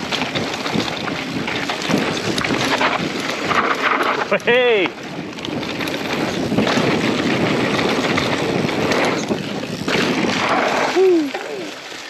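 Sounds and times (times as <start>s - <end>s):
wind rushing over microphone: 0.0s - 11.4s
bike tyres rolling on dirt: 0.0s - 12.0s.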